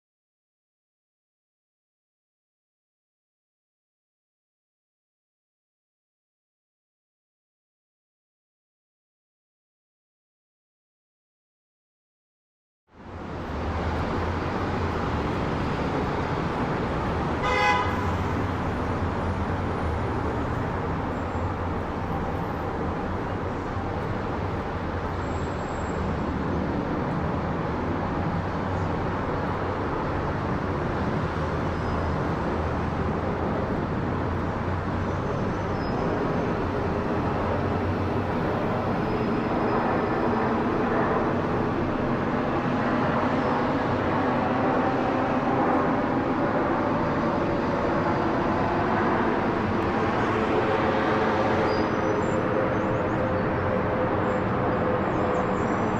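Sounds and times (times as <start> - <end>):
jet airliner noise: 13.2 - 55.9
short horn toot: 17.4 - 18.1.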